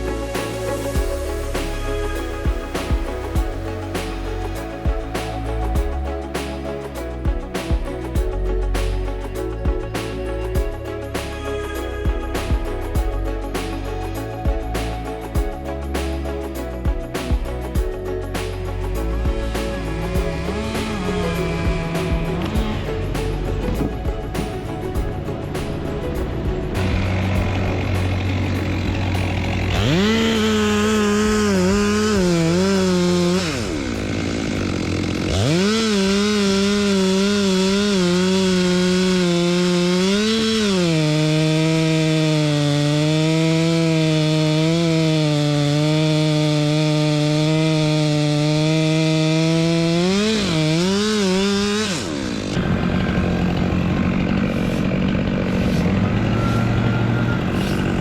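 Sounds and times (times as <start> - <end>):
low engine hum: 15.6 - 40.9, 51.2 - 58.0
chainsaw revving: 17.1 - 58.0.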